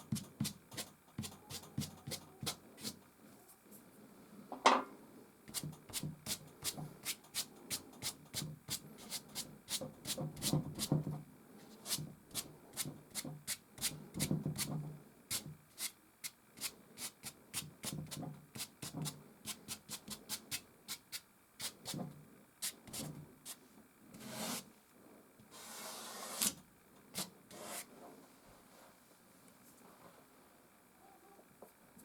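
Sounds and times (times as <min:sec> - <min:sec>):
pastel scratching on canvas: 0:05.5 - 0:11.0, 0:24.2 - 0:24.7, 0:27.2 - 0:27.9.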